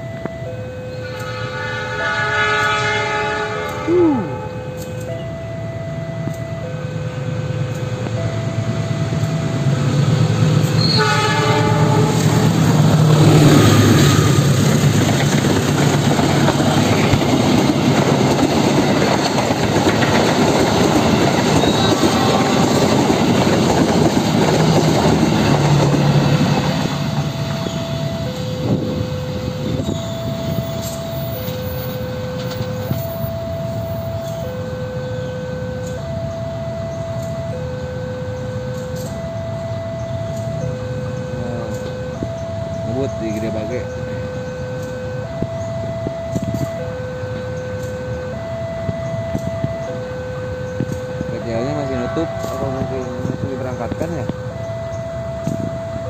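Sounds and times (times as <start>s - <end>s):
crossing warning bell ringing: 0.0s - 56.0s
locomotive horn: 0.6s - 5.4s, 10.6s - 14.9s, 18.9s - 56.0s
train wheels clacking over rail joints: 12.0s - 27.8s.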